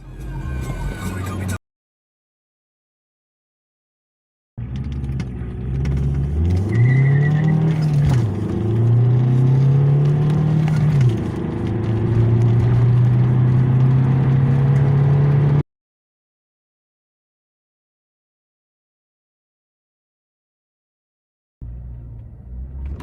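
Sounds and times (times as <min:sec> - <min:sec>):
car engine accelerating: 0:04.6 - 0:15.6, 0:21.6 - 0:23.0.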